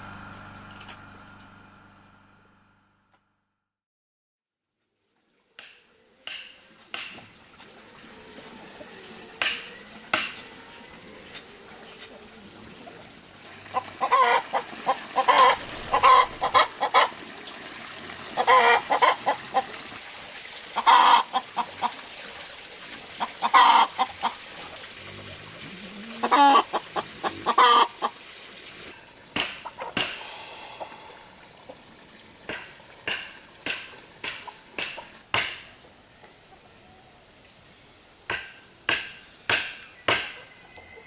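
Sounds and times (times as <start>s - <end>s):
chickens clucking: 13.6s - 17.3s, 18.3s - 19.9s, 20.7s - 22.1s, 23.0s - 28.2s, 29.6s - 30.2s.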